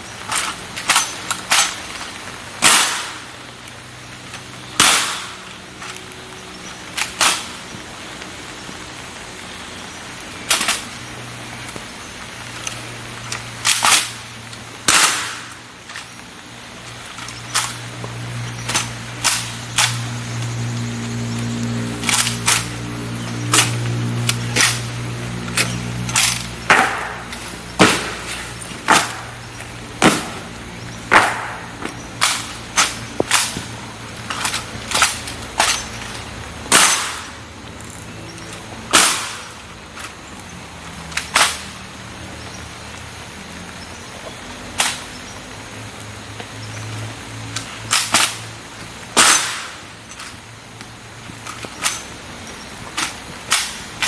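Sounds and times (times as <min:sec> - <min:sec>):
steady rain hiss: 0:00.0 - 0:54.0
rifles slapped and stamped: 0:25.5 - 0:29.4, 0:30.0 - 0:30.5, 0:31.1 - 0:37.3.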